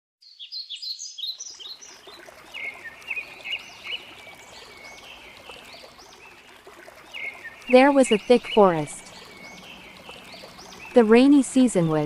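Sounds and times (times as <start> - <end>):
birds chirping and singing: 0.2 - 6.4, 7.0 - 12.0.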